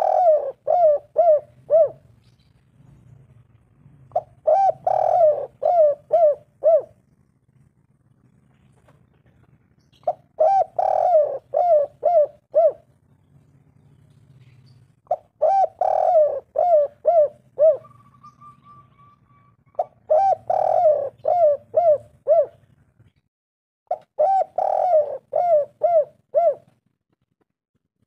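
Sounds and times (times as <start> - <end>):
dove cooing: 0.0 - 2.1, 4.1 - 7.3, 10.0 - 13.0, 14.4 - 22.7, 23.9 - 26.8.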